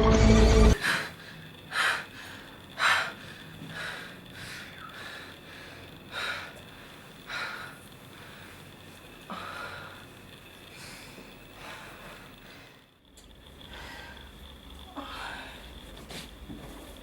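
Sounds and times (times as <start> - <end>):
person breathing audibly: 13.6 - 16.4.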